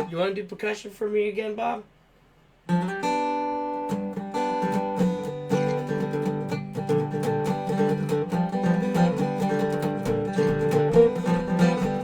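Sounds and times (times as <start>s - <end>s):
resonator guitar picking: 2.7s - 12.0s.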